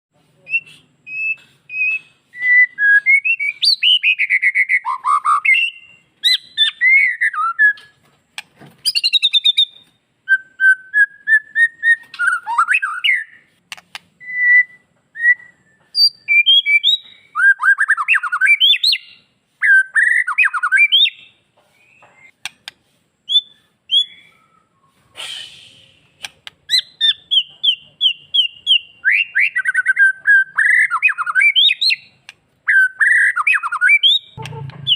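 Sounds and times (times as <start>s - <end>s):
songbird whistling and trilling: 0.4s - 8.0s, 8.8s - 13.5s, 14.2s - 22.5s, 23.2s - 34.9s
harsh rasping bird note: 34.4s - 34.9s.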